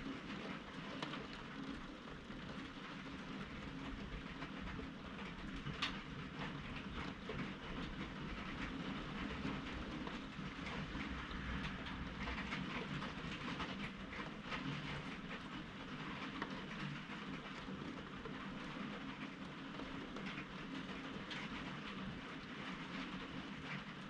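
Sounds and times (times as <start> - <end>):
rain drops ticking: 0.0 - 24.0
low thunder rumble: 9.1 - 14.3.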